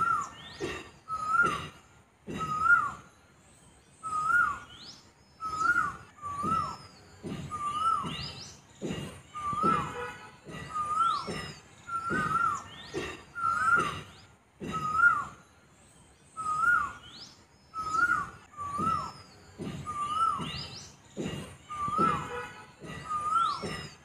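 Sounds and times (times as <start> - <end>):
bird whistling rising and falling: 0.0 - 1.6, 2.3 - 3.1, 4.0 - 8.6, 9.3 - 9.9, 10.7 - 13.9, 14.7 - 15.5, 16.3 - 21.0, 21.6 - 22.4, 23.0 - 24.0
higher sweeping bird calls: 0.0 - 24.0.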